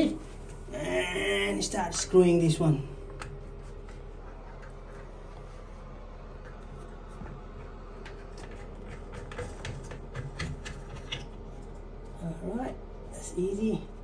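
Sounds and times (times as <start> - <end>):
low steady hum: 0.0 - 14.0
plastic valve parts clicking and scraping: 6.4 - 11.4.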